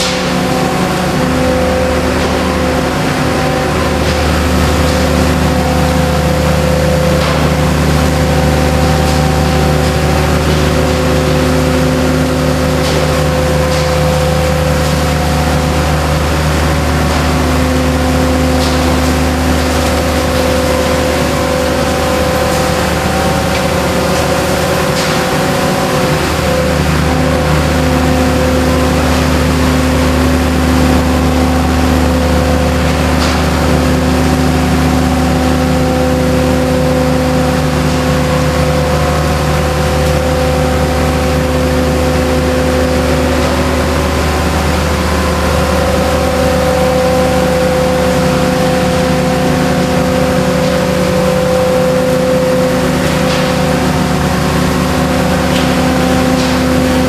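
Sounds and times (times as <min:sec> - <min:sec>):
machinery engine and fan drone: 0:00.0 - 0:57.0.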